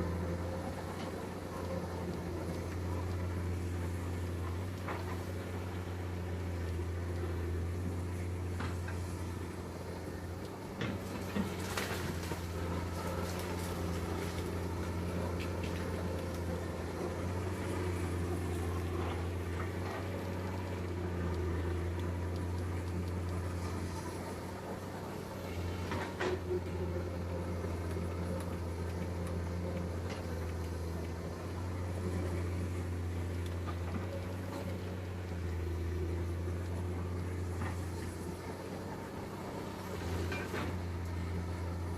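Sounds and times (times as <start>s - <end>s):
diesel machinery engine running: 0.0s - 41.9s.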